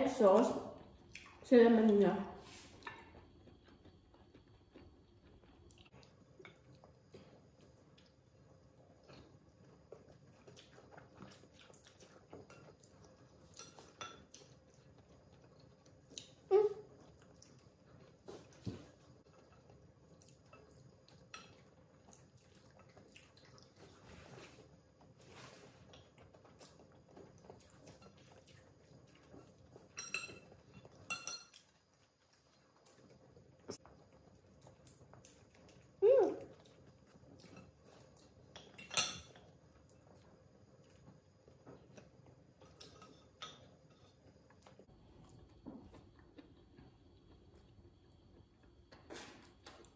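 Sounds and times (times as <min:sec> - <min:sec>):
faint eating noises: 0:00.0 - 0:49.9
chewing and mouth smacks: 0:09.9 - 0:16.4, 0:17.0 - 0:24.0, 0:32.5 - 0:38.8
utensil clinking on plate: 0:29.9 - 0:31.6.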